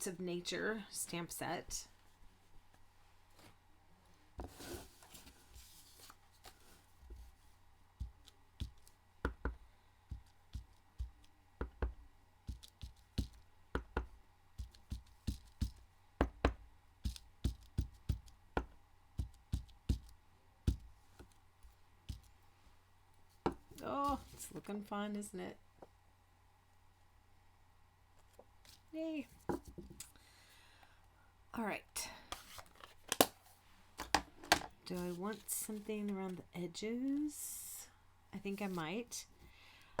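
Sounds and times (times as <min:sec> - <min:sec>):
rustle of handling: 0:02.0 - 0:08.9.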